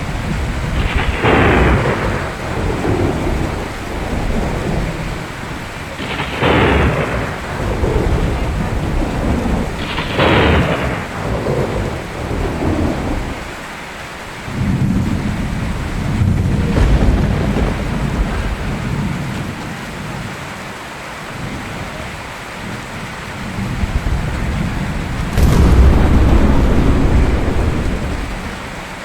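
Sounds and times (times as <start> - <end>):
steady rain: 0.0 - 29.0
low thunder rumble: 15.4 - 19.4, 23.9 - 29.0
thunder crashes: 16.5 - 19.5, 24.8 - 29.0.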